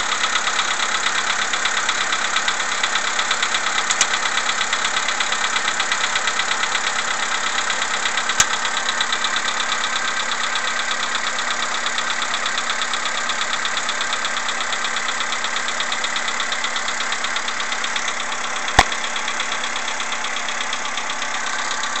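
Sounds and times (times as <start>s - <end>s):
car engine idling with knocking: 0.0s - 22.0s
sharp clicks: 3.9s - 4.2s.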